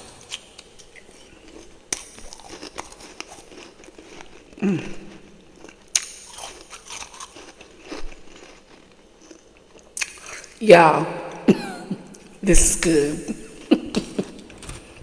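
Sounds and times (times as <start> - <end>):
chewing and crunching frost: 0.0 - 10.6.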